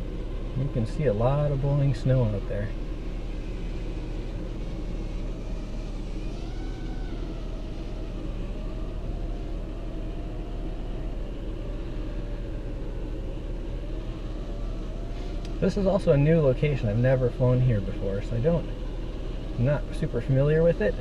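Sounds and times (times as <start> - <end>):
faint wavering whine: 0.0 - 21.0
low rumble inside car: 0.0 - 21.0
blizzard wind: 2.0 - 16.0.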